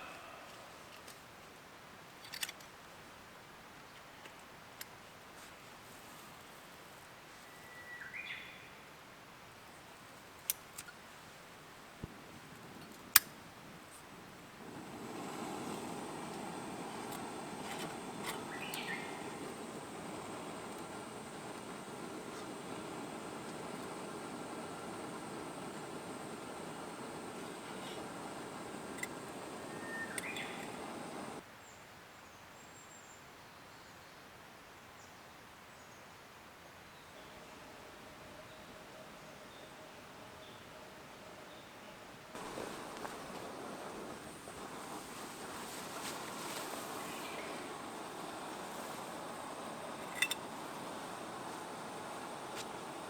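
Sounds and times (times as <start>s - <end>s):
steady hiss: 10.0s - 31.4s, 42.4s - 53.0s
sharp clicks: 14.9s - 31.4s
high bird chirps: 16.6s - 22.4s, 28.0s - 31.4s.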